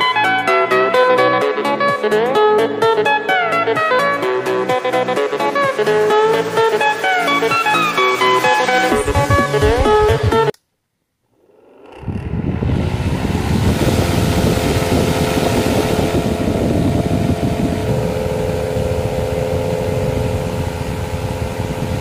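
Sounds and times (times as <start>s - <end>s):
small electric fan motor whirring: 11.3s - 22.0s.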